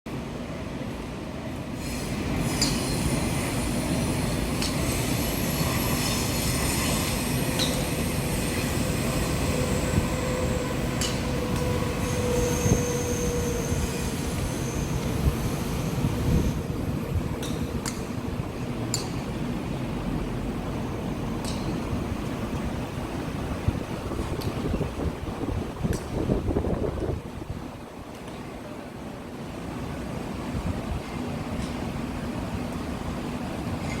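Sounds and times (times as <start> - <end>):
high metallic squeals: 1.8 - 16.7
strong wind buffeting: 2.2 - 28.1.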